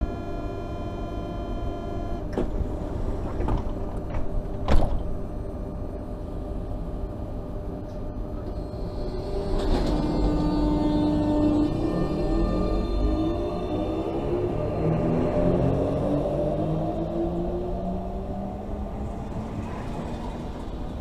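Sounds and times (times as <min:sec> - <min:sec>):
steady hum: 0:00.0 - 0:15.7
electric train rumbling: 0:00.0 - 0:21.0.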